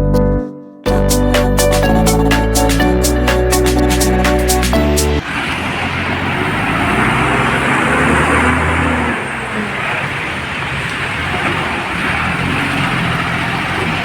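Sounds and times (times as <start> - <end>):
diesel truck engine running: 1.0 - 14.0
road noise rushing: 3.5 - 14.0.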